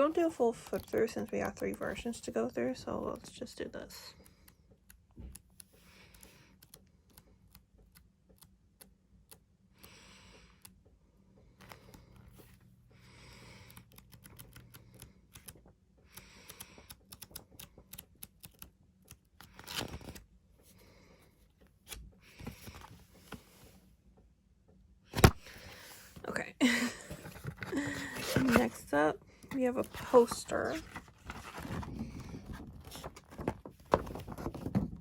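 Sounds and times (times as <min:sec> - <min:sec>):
pages turning: 0:19.4 - 0:20.2, 0:25.2 - 0:26.2, 0:27.1 - 0:28.9, 0:29.5 - 0:35.0.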